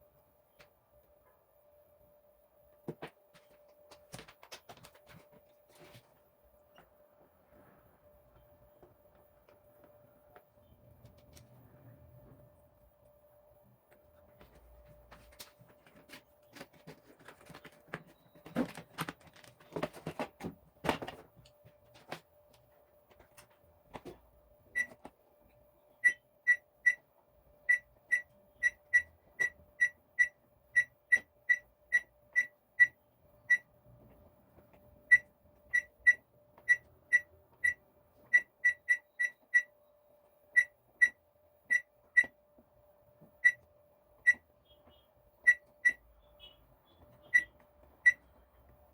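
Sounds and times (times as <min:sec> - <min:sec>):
faint steady hum: 0:00.0 - 0:48.9
handling knocks and clatter: 0:15.2 - 0:22.3
microwave control panel beeping: 0:24.7 - 0:25.0, 0:25.9 - 0:33.7, 0:35.0 - 0:39.8, 0:40.5 - 0:42.4, 0:43.4 - 0:48.3.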